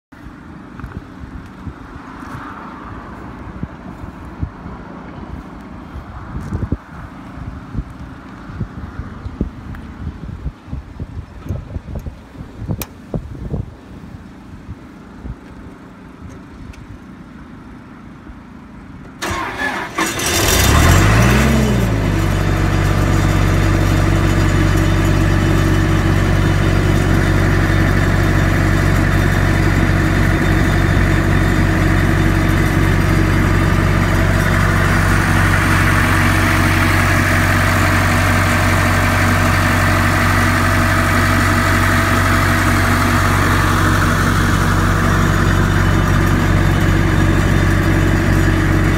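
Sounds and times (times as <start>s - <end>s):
diesel engine starting and idling: 18.9s - 48.9s.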